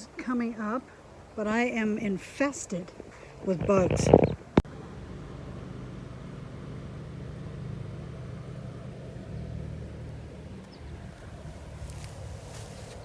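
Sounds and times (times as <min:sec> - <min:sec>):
low engine hum: 0:03.4 - 0:13.0.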